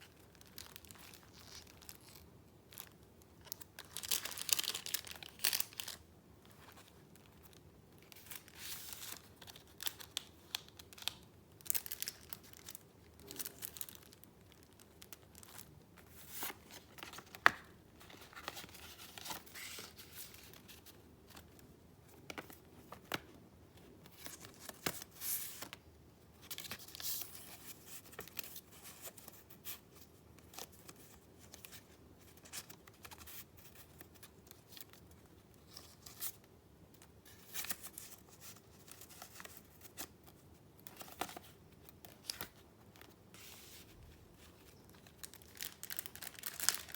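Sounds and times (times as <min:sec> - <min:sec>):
papers being handled: 0:14.8 - 0:25.8.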